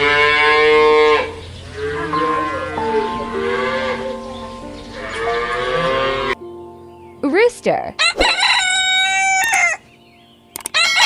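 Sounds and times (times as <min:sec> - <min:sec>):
cattle mooing: 0:00.0 - 0:06.4
background music: 0:01.5 - 0:11.0.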